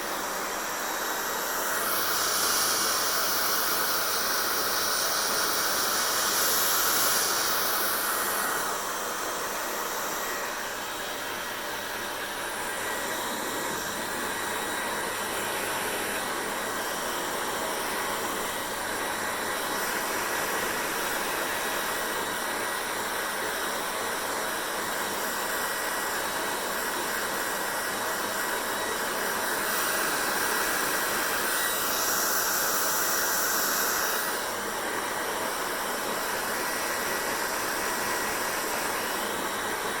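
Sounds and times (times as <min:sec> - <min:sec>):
hair dryer blowing: 0:00.0 - 0:40.0.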